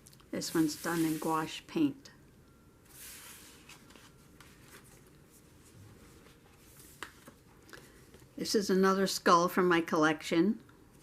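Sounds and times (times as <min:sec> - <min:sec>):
paper pages rustling: 0:00.5 - 0:01.5, 0:02.9 - 0:08.3.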